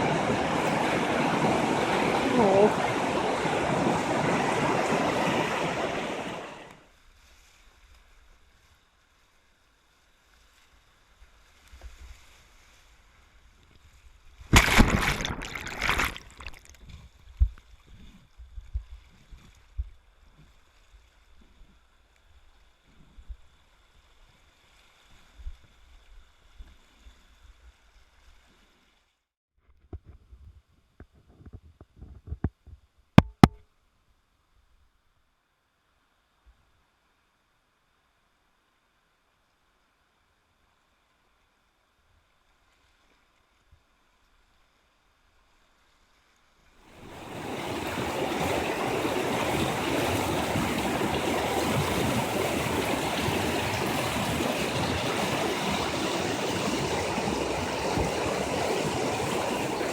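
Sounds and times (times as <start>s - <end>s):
whitewater rapids rushing: 0.0s - 6.8s, 46.9s - 59.9s
knocks and thumps: 33.2s - 33.6s.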